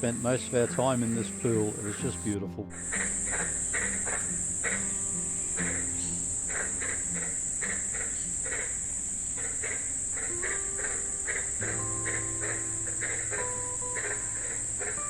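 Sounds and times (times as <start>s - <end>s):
short chirping calls: 0.0s - 15.0s
high-pitched insect buzz: 2.7s - 15.0s.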